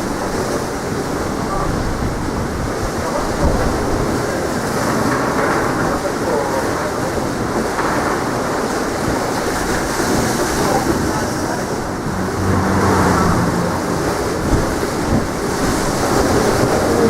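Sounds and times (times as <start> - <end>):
sea surf: 0.0 - 17.0
wind buffeting microphone: 0.0 - 17.0
low hum: 11.5 - 15.5.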